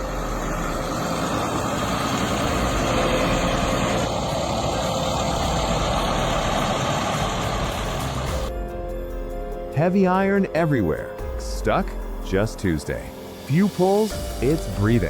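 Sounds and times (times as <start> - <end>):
tractor diesel engine roaring: 0.0 - 8.5.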